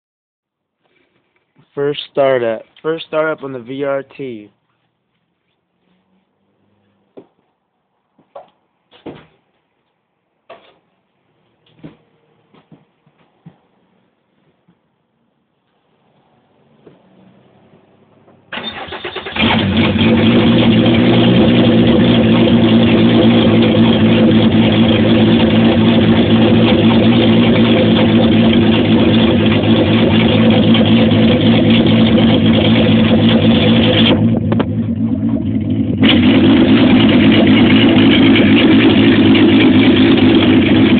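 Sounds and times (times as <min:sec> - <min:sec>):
engine cranking and starting: 0:18.5 - 0:40.9
engine running loudly: 0:19.2 - 0:40.9.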